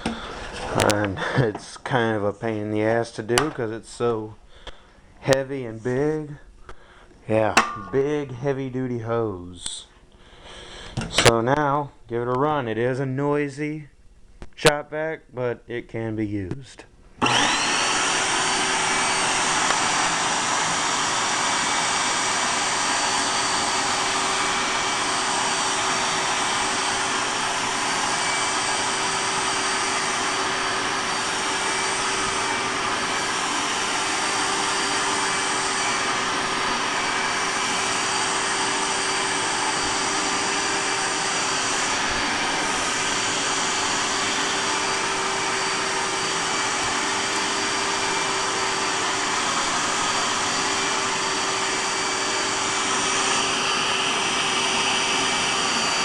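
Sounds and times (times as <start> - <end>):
shop vacuum running: 0.0 - 6.4, 17.2 - 56.0.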